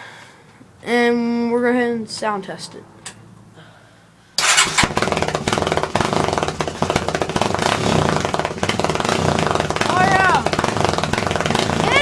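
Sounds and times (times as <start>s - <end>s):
atv engine running roughly: 4.4s - 12.0s.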